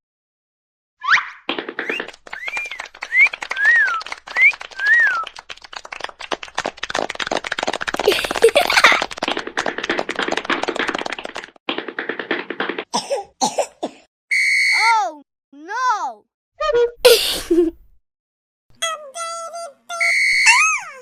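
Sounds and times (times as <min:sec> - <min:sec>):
crowd applauding: 0:01.6 - 0:12.9
short whistles: 0:01.9 - 0:05.4, 0:14.3 - 0:14.9, 0:20.0 - 0:20.8
squealing cheers: 0:02.3 - 0:05.4.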